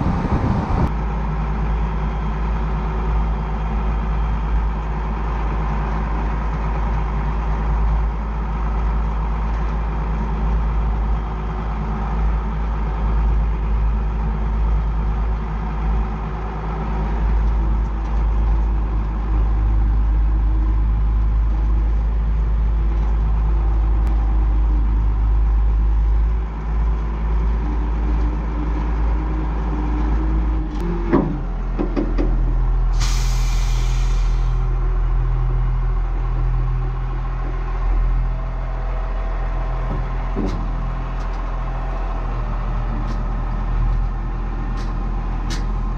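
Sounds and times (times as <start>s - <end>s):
tractor diesel engine running: 0.0s - 45.9s
air hiss: 32.9s - 34.7s.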